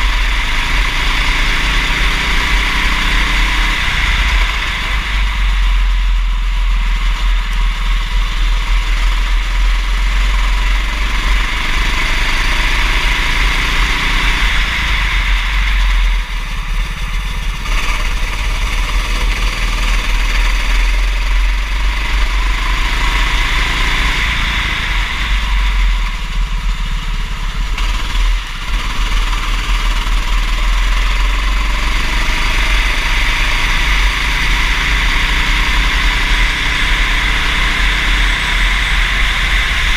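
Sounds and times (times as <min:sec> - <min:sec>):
heavy low rumble: 0:00.0 - 0:39.9
kart engine accelerating: 0:00.0 - 0:39.9.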